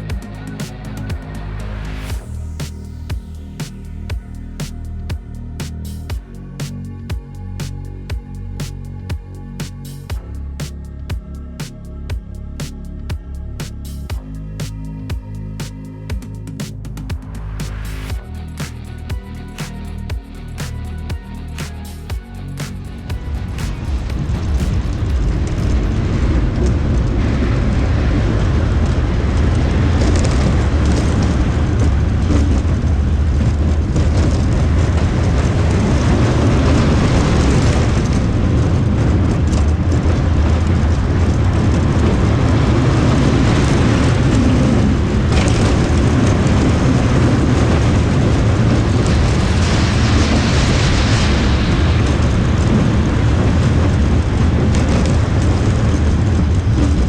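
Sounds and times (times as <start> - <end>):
wind rushing over microphone: 22.8 - 57.0
roller coaster wheels rumbling: 23.8 - 57.0.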